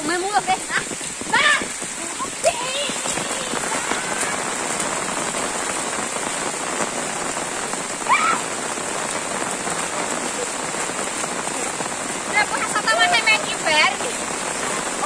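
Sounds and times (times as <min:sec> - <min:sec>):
rain falling on trees: 0:00.0 - 0:15.0
child shouting: 0:01.3 - 0:01.7, 0:02.4 - 0:04.4.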